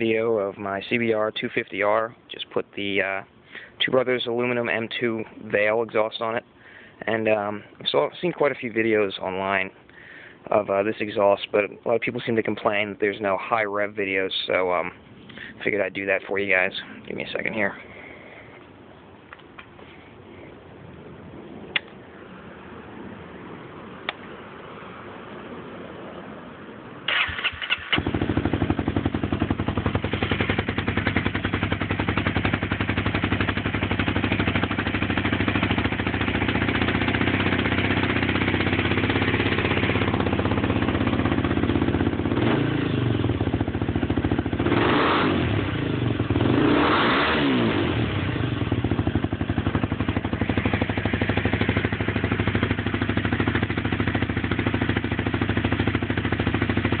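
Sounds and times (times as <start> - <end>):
motorcycle engine idling and revving: 27.0 - 57.0.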